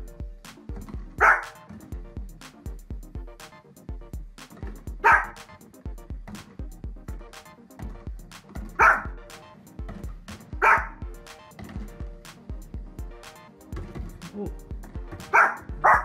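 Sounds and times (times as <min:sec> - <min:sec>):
background music with steady beat: 0:00.0 - 0:16.0
dog barking: 0:01.2 - 0:01.6, 0:05.0 - 0:05.4, 0:08.8 - 0:09.2, 0:10.6 - 0:11.0, 0:15.2 - 0:16.0.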